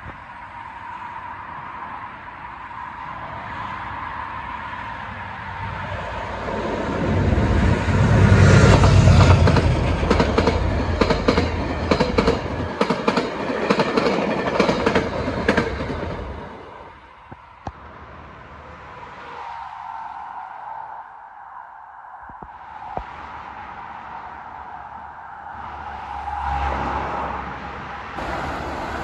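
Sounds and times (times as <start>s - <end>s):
train rumbling past: 4.2s - 19.4s, 23.4s - 29.0s
train wheels clickety-clack: 8.4s - 16.6s.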